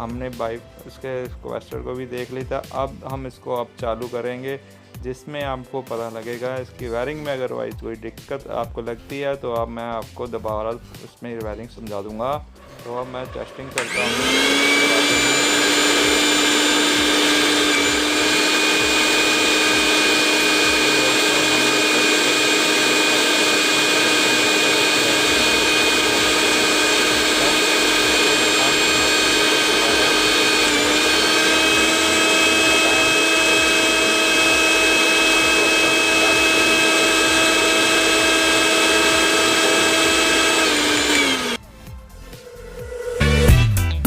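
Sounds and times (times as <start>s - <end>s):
washing machine motor whine: 12.6s - 41.6s.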